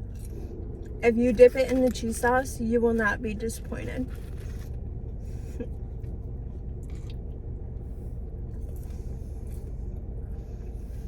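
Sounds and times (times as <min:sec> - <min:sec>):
car engine idling: 0:00.0 - 0:11.0
soft chewing: 0:05.5 - 0:11.0.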